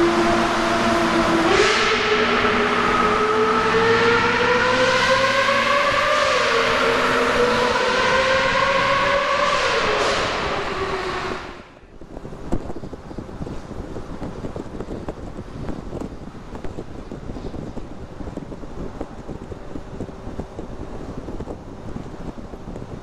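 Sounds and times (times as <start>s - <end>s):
car engine accelerating hard: 0.0s - 11.9s
road rumble: 0.0s - 23.0s
wind noise: 0.0s - 23.0s.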